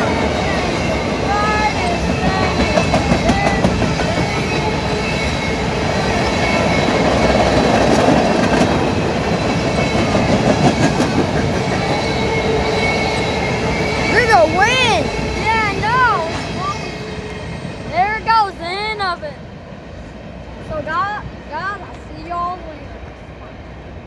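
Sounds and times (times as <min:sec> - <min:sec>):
steel wheels clacking over rail joints: 0:00.0 - 0:19.2
rumble of freight cars: 0:00.0 - 0:24.0.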